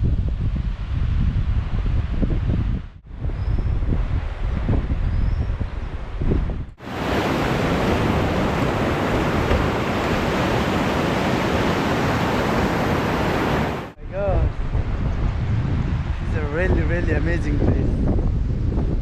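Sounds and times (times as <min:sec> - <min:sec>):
wind buffeting microphone: 0:00.0 - 0:19.0
fast-flowing river water: 0:06.8 - 0:14.0.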